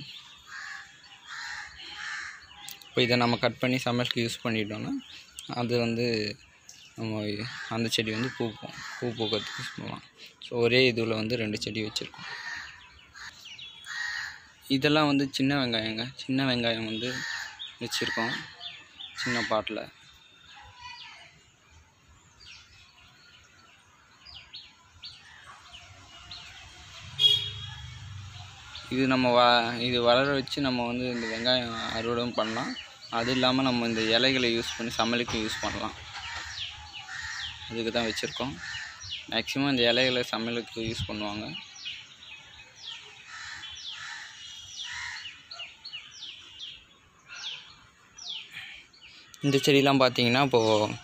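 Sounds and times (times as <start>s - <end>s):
loud bird call: 0.0s - 3.0s, 12.1s - 14.6s, 16.8s - 21.4s, 24.2s - 39.6s, 41.2s - 49.7s
small birds chirping: 0.0s - 51.0s.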